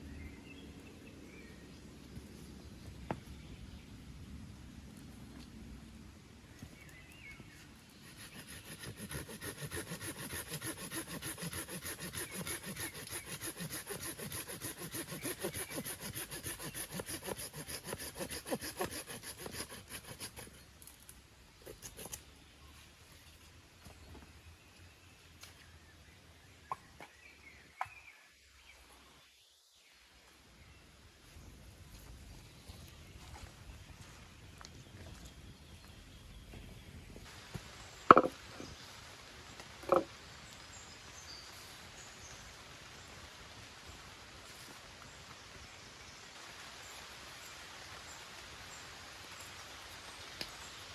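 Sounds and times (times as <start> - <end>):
hand saw cutting wood: 8.0 - 20.7, 21.6 - 22.2.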